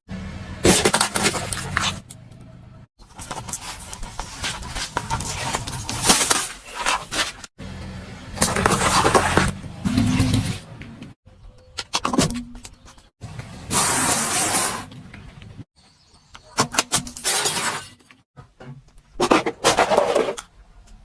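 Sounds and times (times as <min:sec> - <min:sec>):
objects crunching under car tyres: 0:00.6 - 0:02.1, 0:03.0 - 0:07.5, 0:08.3 - 0:11.2.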